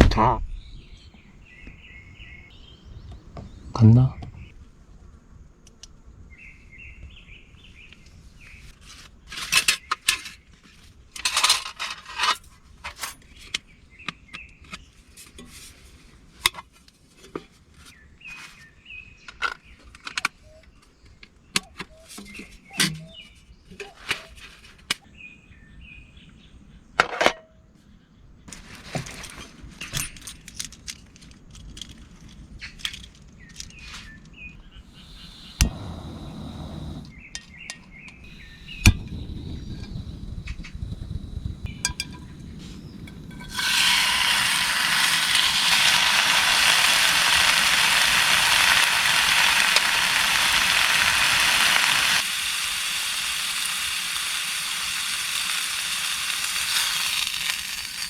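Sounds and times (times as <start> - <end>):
small birds chirping: 0.5 - 4.5, 32.6 - 58.0.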